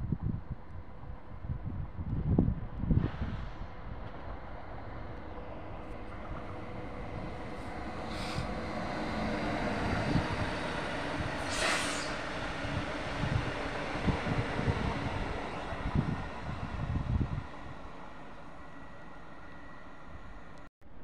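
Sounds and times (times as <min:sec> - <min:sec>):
train rail rumble and hum: 0:00.0 - 0:21.0
short hiss: 0:11.4 - 0:12.2.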